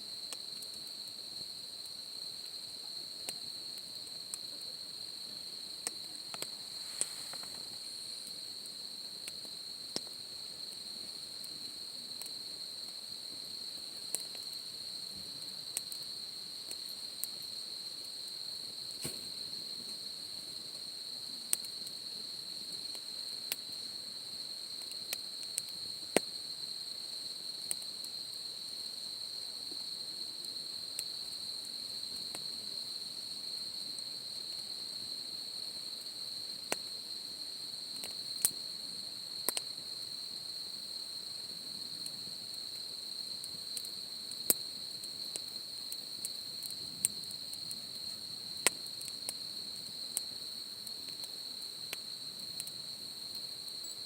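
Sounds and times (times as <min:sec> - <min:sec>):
insect chorus: 0:00.0 - 0:54.0
campfire popping and crackling: 0:05.8 - 0:11.6, 0:18.8 - 0:20.1, 0:48.5 - 0:50.3.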